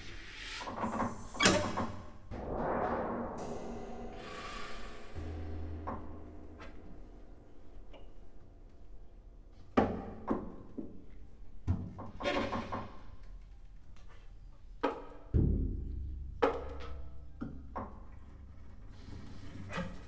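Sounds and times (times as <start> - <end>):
deep low strike ringing: 2.3 - 9.8.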